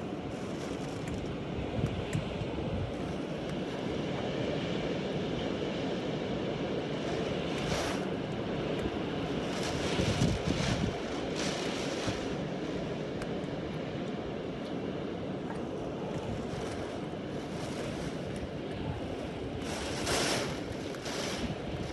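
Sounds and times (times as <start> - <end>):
wind buffeting microphone: 0.0 - 4.4, 6.5 - 13.3, 15.6 - 21.9
storm wind rushing: 9.0 - 12.7, 16.2 - 21.9.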